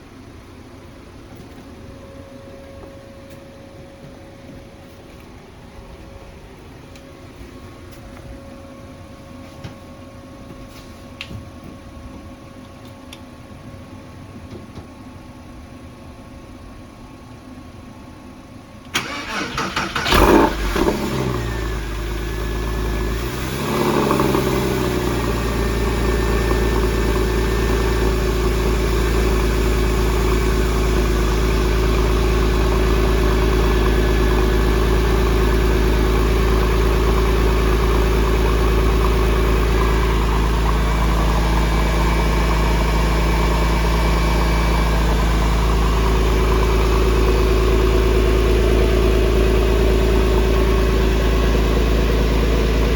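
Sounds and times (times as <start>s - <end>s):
car engine revving and idling: 19.0s - 52.9s.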